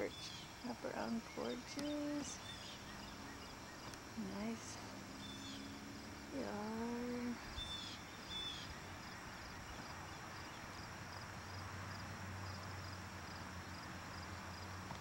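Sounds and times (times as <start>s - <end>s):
small bird chirping: 0.0s - 10.9s
outdoor background hiss: 0.0s - 15.0s.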